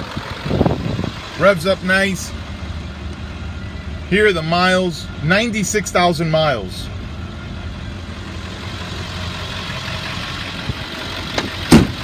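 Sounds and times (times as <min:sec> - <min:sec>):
diesel truck engine idling: 0:00.0 - 0:12.0
sharp clunk: 0:11.4 - 0:12.0.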